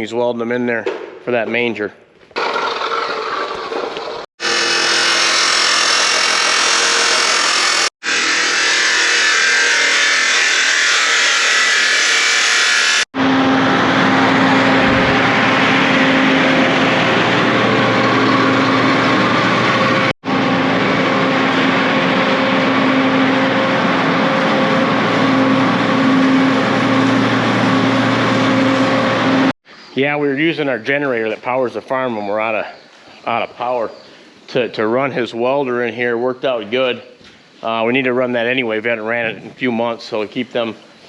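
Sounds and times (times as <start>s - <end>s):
generator engine hum: 2.4s - 11.5s, 13.2s - 29.5s.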